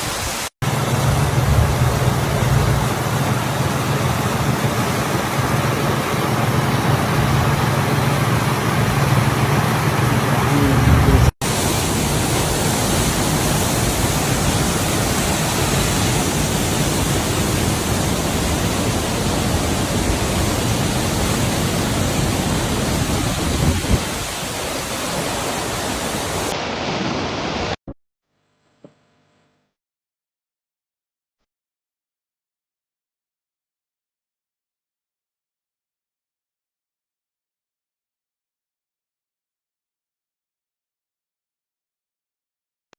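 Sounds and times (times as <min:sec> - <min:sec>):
waterfall rushing: 0:00.0 - 0:27.8.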